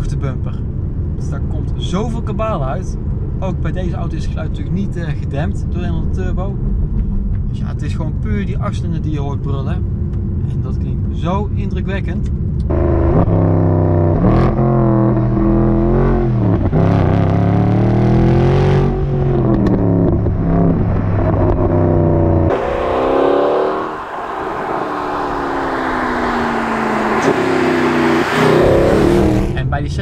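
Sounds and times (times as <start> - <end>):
wind and road noise: 0.0 - 30.0
car engine accelerating hard: 12.6 - 30.0.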